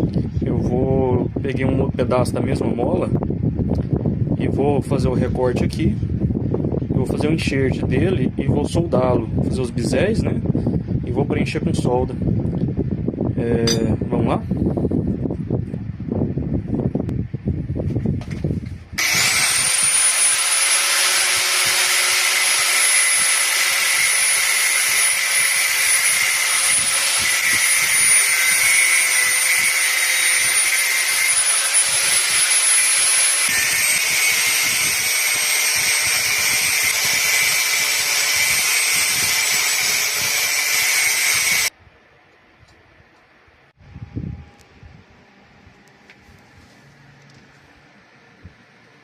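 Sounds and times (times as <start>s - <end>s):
angle grinder motor whine: 19.0s - 41.7s
grinding hiss: 19.0s - 41.7s.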